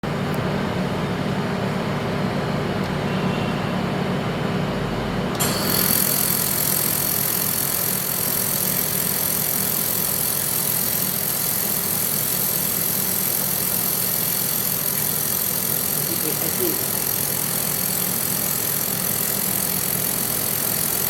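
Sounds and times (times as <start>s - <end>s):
low machine hum: 0.0s - 21.0s
laser welding hiss: 5.4s - 21.0s.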